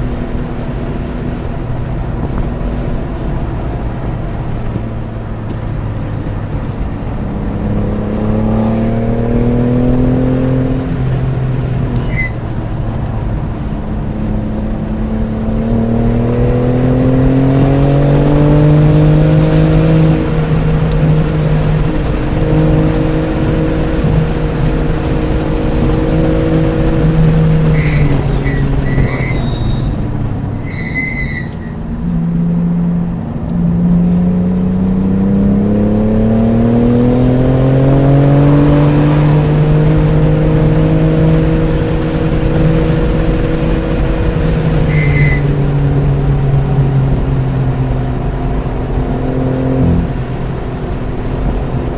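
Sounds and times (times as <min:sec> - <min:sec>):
car engine revving: 0:00.0 - 0:51.9
tyre squeals: 0:12.0 - 0:12.4, 0:27.3 - 0:31.9, 0:44.8 - 0:45.6.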